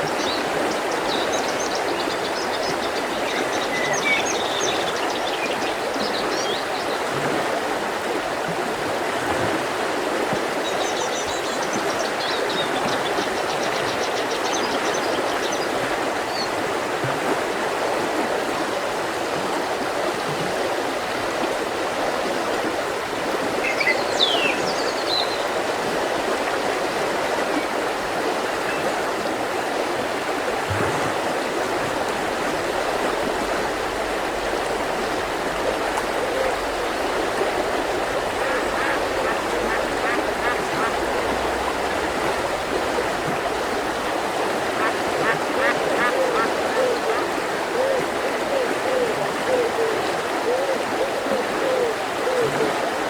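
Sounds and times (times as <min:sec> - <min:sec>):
river rushing over rocks: 0:25.1 - 0:53.0.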